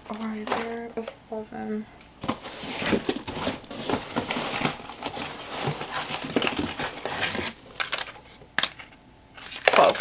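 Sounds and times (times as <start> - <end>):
packaging rustling: 2.2 - 10.0.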